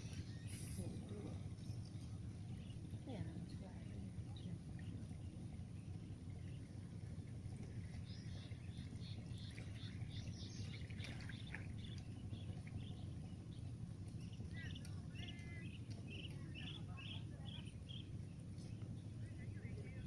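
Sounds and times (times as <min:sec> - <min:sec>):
birds chirping: 0:00.0 - 0:20.0
steady low rumble: 0:00.0 - 0:20.0.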